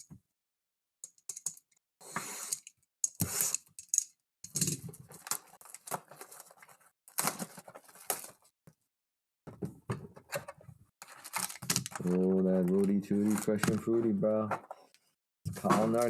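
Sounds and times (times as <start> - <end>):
cards clicking and rustling: 11.0 - 14.1, 15.5 - 16.0.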